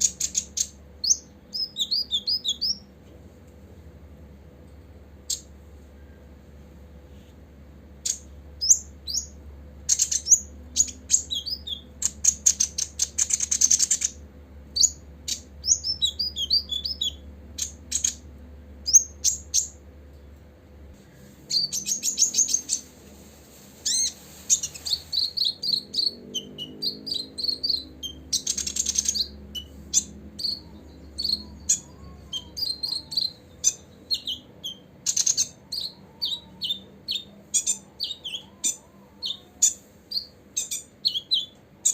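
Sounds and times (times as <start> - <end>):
bird chirping and trilling: 0.0 - 2.9, 8.0 - 19.8, 21.5 - 23.0, 23.8 - 41.9
faint steady hum: 0.0 - 41.9.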